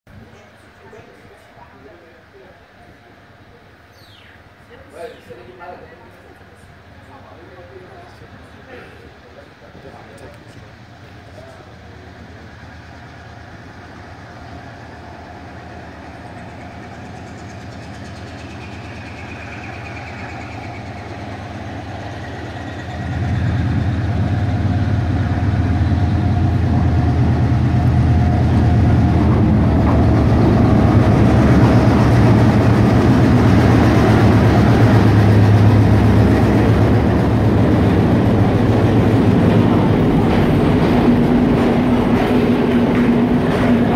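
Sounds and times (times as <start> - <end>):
carriages rumbling past: 0.1 - 43.9
diesel locomotive engine: 0.1 - 43.9.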